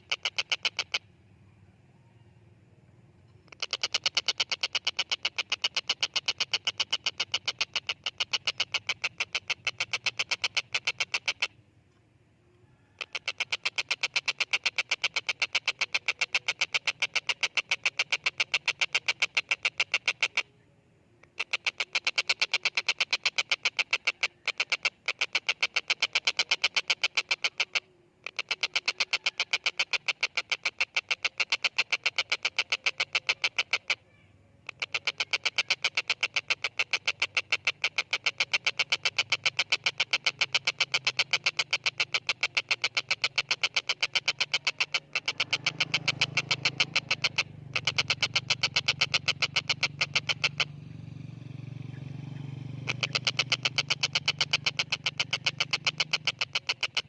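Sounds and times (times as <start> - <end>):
kingfisher rattling call: 0.0 - 1.1, 3.5 - 11.6, 12.9 - 20.5, 21.2 - 57.0.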